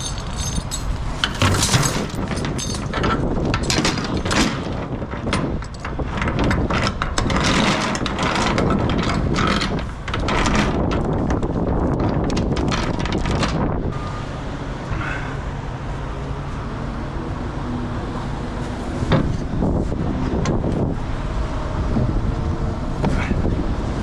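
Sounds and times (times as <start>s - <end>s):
metallic clanks and rattles: 0.0s - 14.0s
wind buffeting microphone: 0.0s - 14.2s, 17.1s - 24.0s.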